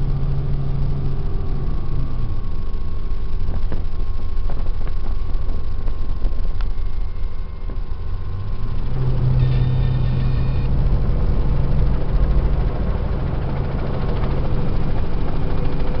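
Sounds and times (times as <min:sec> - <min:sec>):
deep steady tone: 0:00.0 - 0:16.0
helicopter engine and rotor drone: 0:00.0 - 0:16.0
brief high tone: 0:06.8 - 0:08.5, 0:09.1 - 0:10.8.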